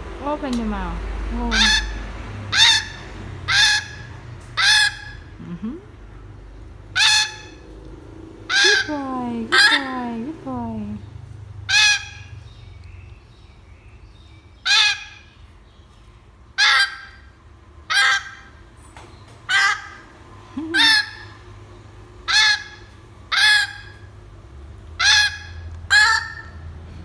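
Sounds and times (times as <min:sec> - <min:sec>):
parrot squawking: 0:01.3 - 0:05.4, 0:06.9 - 0:07.7, 0:08.4 - 0:10.2, 0:11.6 - 0:12.4, 0:14.6 - 0:15.5, 0:16.6 - 0:18.6, 0:19.5 - 0:21.5, 0:22.2 - 0:24.2, 0:25.0 - 0:26.8.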